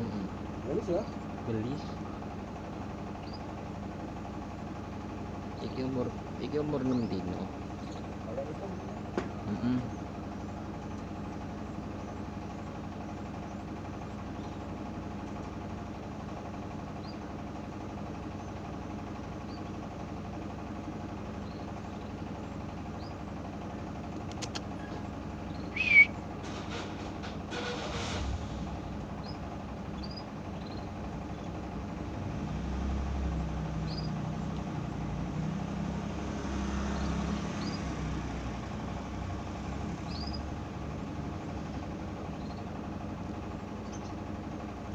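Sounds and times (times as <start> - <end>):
machine hum: 0.0 - 44.9
canaries chirping: 3.1 - 3.6, 6.5 - 8.9, 29.2 - 31.7, 33.6 - 34.6, 36.9 - 38.0, 39.8 - 40.6, 41.7 - 42.7, 43.8 - 44.3
sharp clicks: 24.1 - 24.8.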